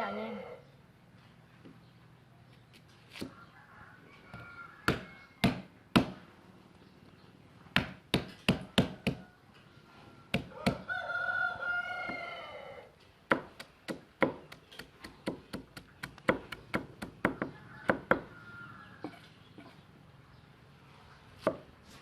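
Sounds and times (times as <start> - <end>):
rooster crowing: 3.3 - 5.6, 10.1 - 12.9, 17.2 - 19.3.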